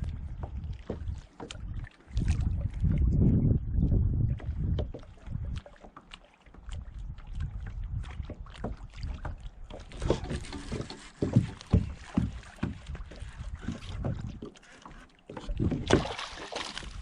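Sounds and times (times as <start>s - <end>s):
water sounds: 0.0s - 17.0s
knocks in a kayak: 8.1s - 14.4s, 15.4s - 16.3s.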